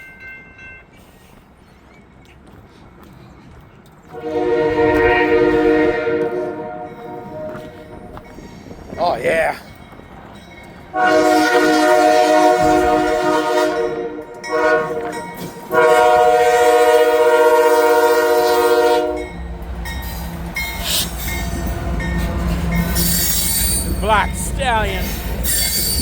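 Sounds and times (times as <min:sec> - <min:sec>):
train rolling past: 0:00.0 - 0:26.0
locomotive air horn blasts: 0:04.1 - 0:08.1, 0:10.9 - 0:19.4.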